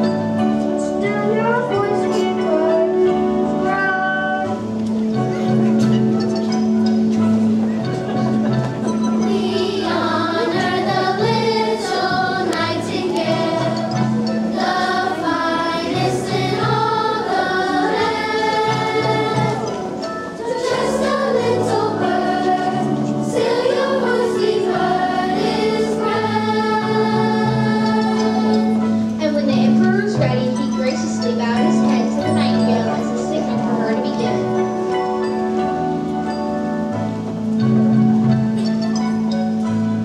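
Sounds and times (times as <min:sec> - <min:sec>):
instrumental accompaniment: 0:00.0 - 0:40.0
children's choir singing: 0:07.9 - 0:36.4.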